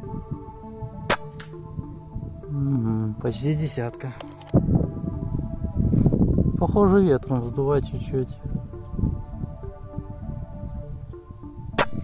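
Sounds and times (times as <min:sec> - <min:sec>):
background music with held notes: 0:00.0 - 0:12.0
wind rumble on microphone: 0:00.0 - 0:12.0
air rifle shot: 0:01.1 - 0:01.6, 0:11.8 - 0:12.0.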